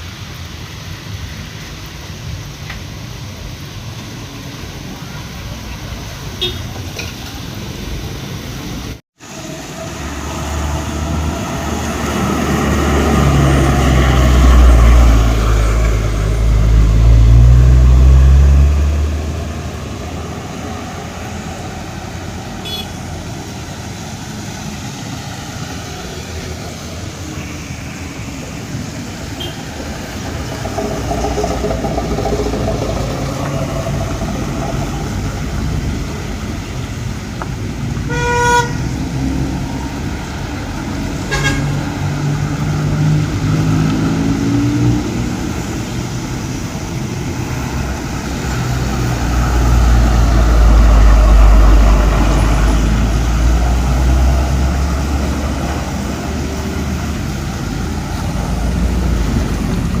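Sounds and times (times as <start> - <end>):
cars and trucks passing: 0.0 - 60.0
heavy vehicle low rumble: 0.0 - 60.0
car horn toot: 6.4 - 6.7, 22.6 - 23.0, 29.4 - 29.6, 38.1 - 38.8, 41.3 - 41.7
engine pulling away: 9.2 - 27.4, 28.2 - 38.0, 38.8 - 60.0.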